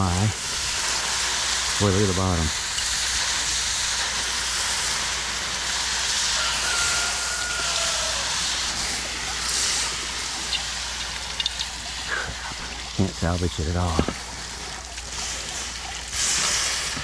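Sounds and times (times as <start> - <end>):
hot metal hissing in water: 0.0 - 17.0.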